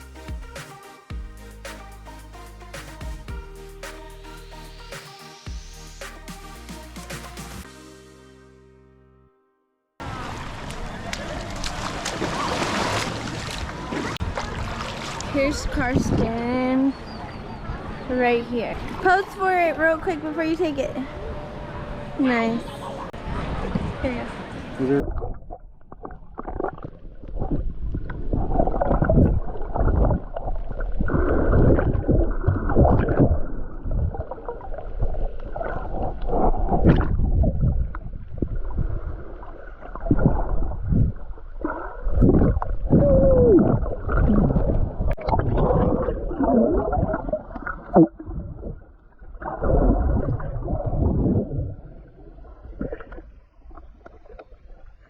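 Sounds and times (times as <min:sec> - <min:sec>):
muffled underwater gurgling: 0:24.9 - 0:54.4.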